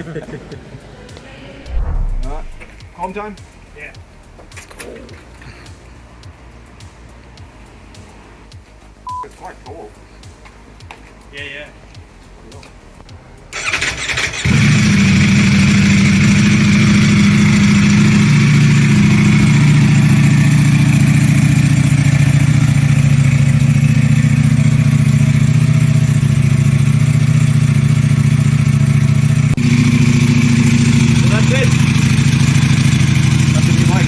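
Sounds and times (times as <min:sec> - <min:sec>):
motorcycle engine idling: 0:13.6 - 0:34.0.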